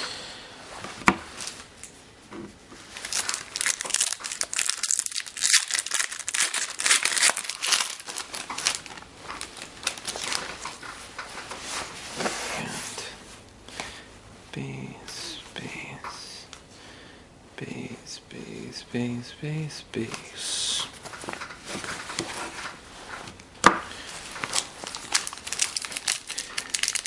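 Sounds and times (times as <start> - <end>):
foil wrapper crinkling and tearing: 2.9 - 10.7, 24.4 - 27.0.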